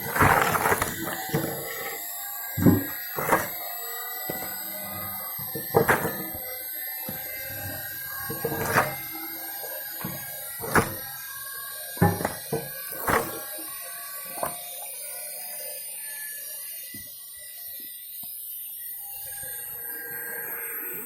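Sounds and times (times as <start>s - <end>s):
firewood splitting knocks: 0.0s - 2.0s, 2.6s - 11.3s, 12.0s - 13.5s, 14.3s - 14.6s
steady background hum: 0.0s - 15.4s.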